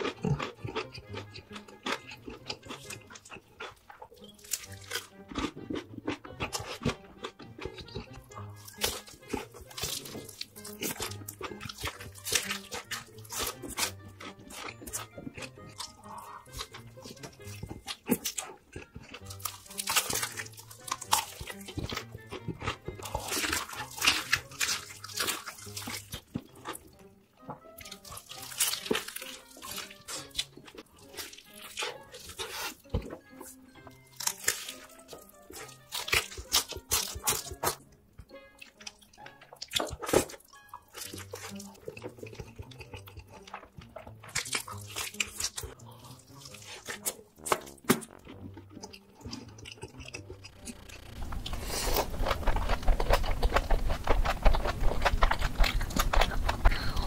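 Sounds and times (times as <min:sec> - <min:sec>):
background music with low beat: 0:00.0 - 0:57.0
fried chicken crunching: 0:00.0 - 0:57.0.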